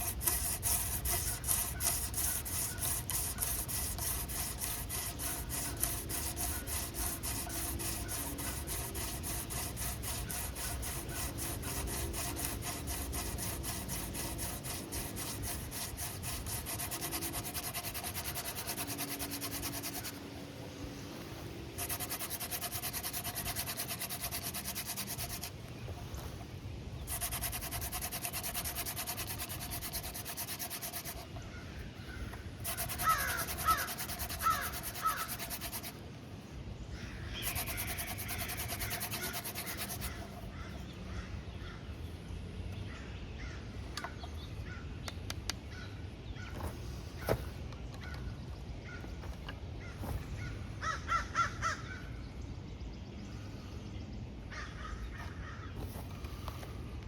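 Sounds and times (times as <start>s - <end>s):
hand rubbing and scraping wood: 0.0s - 20.4s, 21.1s - 36.0s, 37.3s - 40.8s
crow cawing: 50.8s - 51.8s.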